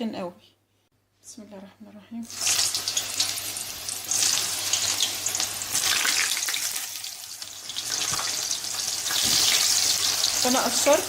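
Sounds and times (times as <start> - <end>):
vegetable slices frying in oil: 2.2 - 11.0.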